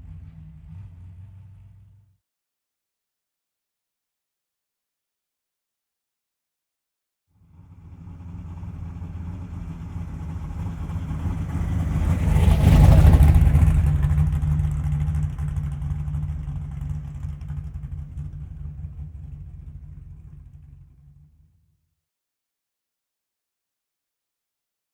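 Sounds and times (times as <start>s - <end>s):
car driving past: 0.0s - 2.2s, 7.4s - 21.4s.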